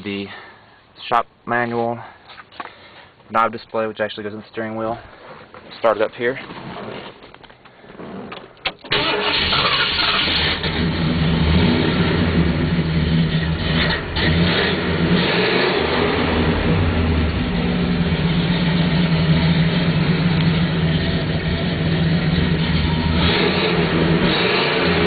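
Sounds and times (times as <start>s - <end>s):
car engine running: 8.9s - 25.0s.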